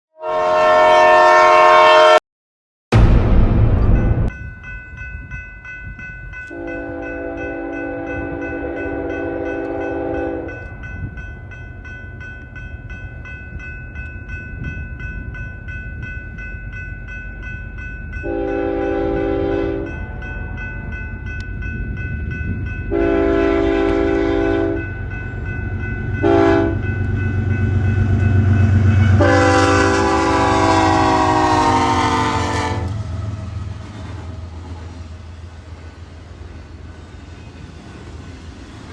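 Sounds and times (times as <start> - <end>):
locomotive air horn blasts: 0.2 - 2.2, 6.5 - 10.6, 18.2 - 20.6, 22.9 - 24.8, 26.2 - 26.8, 29.0 - 33.2
train rumbling: 2.9 - 38.9.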